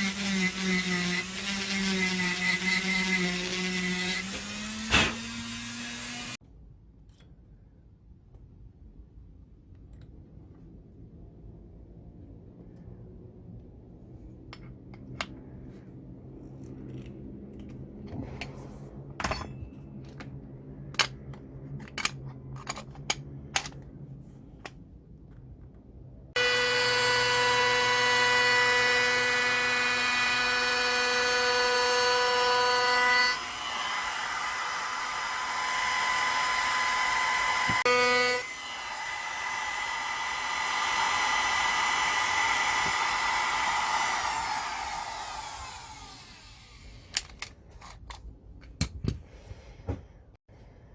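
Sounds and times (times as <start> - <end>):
power tool grinding wood: 0.0 - 6.4, 26.4 - 46.9
power tool whining: 0.0 - 6.4, 26.4 - 47.2
tools clicking and tapping: 19.2 - 24.0.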